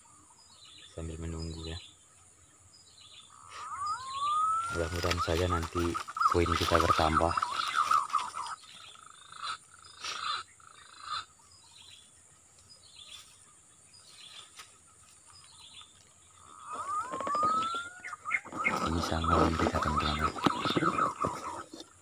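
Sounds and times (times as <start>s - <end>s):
whistled bird calls: 3.1s - 12.0s, 16.4s - 21.8s.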